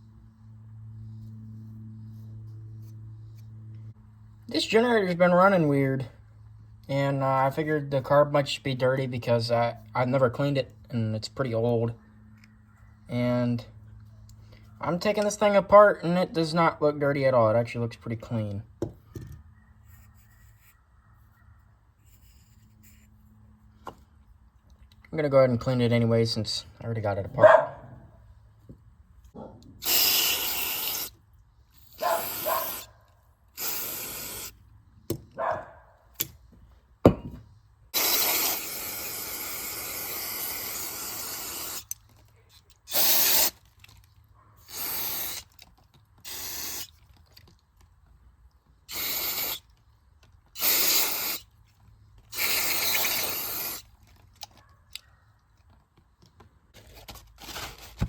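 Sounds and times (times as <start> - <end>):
spray can hissing: 29.8 - 31.2, 31.8 - 32.9, 33.6 - 34.6, 38.0 - 42.0, 42.9 - 43.6, 44.6 - 45.6, 46.2 - 46.9, 48.9 - 49.6, 50.6 - 51.5, 52.3 - 53.9.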